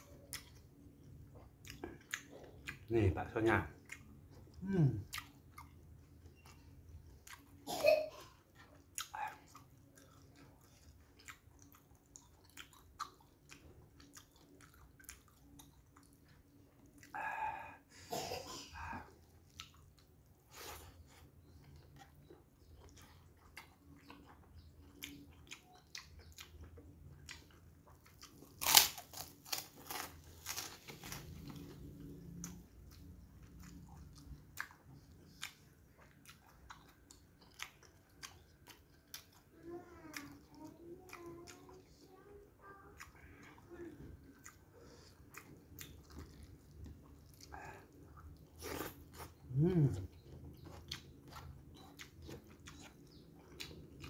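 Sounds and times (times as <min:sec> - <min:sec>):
person chewing and biting food: 0:00.0 - 0:03.0, 0:03.8 - 0:07.6, 0:19.0 - 0:39.5, 0:43.0 - 0:54.0
crisp crunches: 0:28.6 - 0:31.5.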